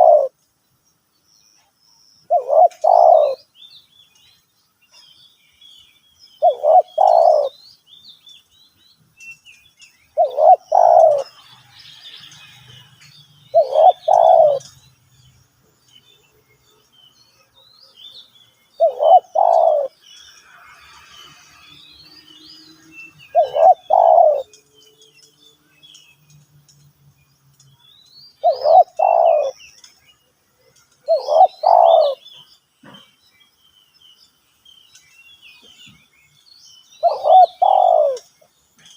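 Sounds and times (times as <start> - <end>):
dove cooing: 0.0 - 0.3, 2.3 - 3.5, 6.4 - 7.6, 10.2 - 11.4, 13.5 - 14.7, 18.8 - 19.9, 23.3 - 24.6, 28.4 - 29.6, 31.1 - 32.2, 37.0 - 38.3
small birds chirping faintly: 0.0 - 38.9.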